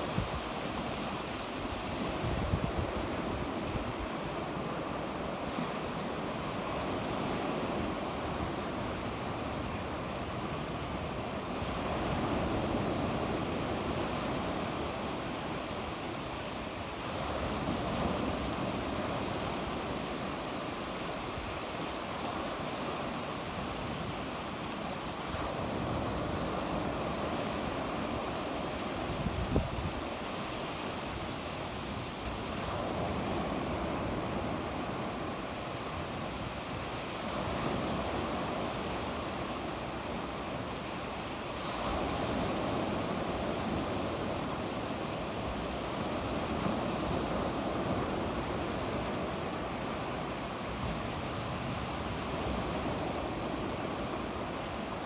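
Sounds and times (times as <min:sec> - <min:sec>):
wind on microphone: 0:00.0 - 0:04.8, 0:25.2 - 0:30.4
sea waves breaking on shore: 0:00.0 - 0:55.0.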